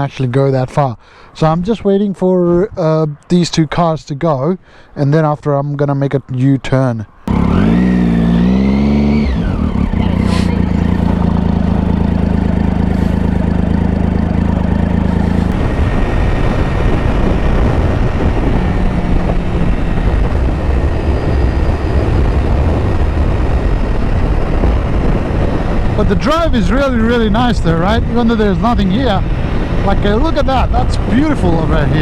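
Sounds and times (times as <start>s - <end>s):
rushing wind noise: 7.1s - 32.0s
motorcycle engine: 7.2s - 32.0s.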